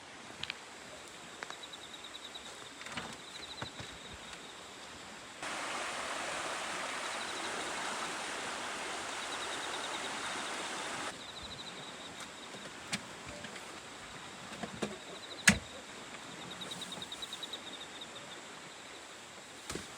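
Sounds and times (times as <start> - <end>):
river rushing: 5.4 - 11.2.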